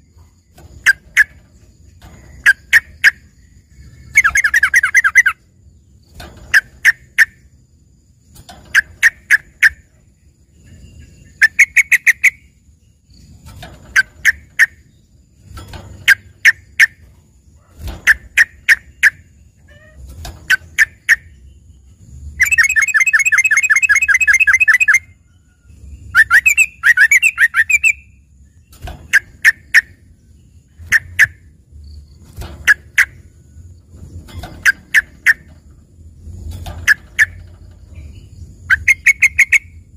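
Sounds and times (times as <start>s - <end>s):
bird trill: 0.0s - 7.5s, 8.4s - 35.8s, 36.8s - 39.9s
bird singing sharp notes: 18.1s - 25.1s.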